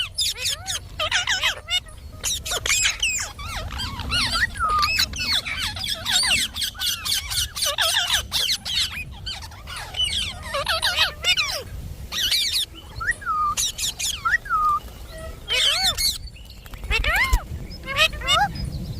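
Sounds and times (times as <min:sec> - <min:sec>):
parakeet squawking and chirping: 0:00.0 - 0:18.6.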